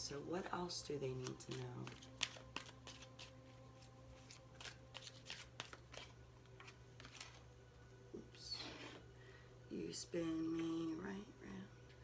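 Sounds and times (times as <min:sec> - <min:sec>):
faint steady hum: 0:00.0 - 0:12.0
cards being shuffled: 0:01.2 - 0:07.5.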